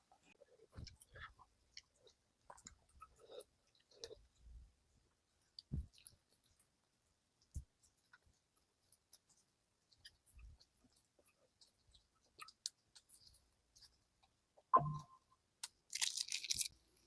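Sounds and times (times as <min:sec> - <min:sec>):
chewing and wet mouth clicks: 0:00.3 - 0:04.4, 0:05.4 - 0:14.4.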